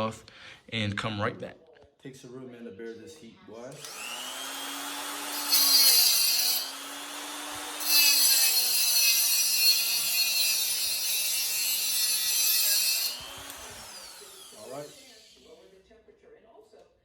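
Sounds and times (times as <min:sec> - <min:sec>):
harsh grinding hiss: 0:03.8 - 0:15.5
power tool motor humming: 0:03.8 - 0:15.5.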